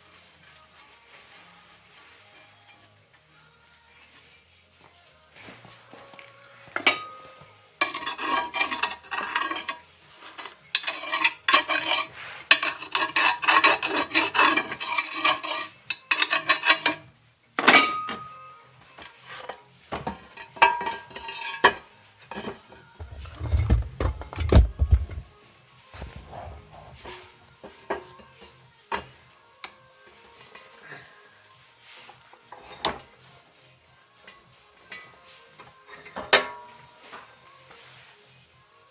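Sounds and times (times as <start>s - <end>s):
steel plates clanking and rattling: 6.8s - 9.8s, 10.4s - 17.0s.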